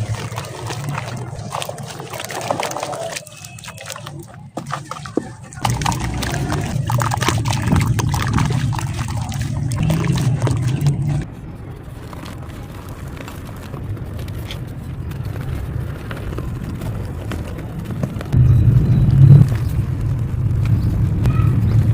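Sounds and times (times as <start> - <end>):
heavy low rumble: 5.4 - 13.1, 18.3 - 21.9.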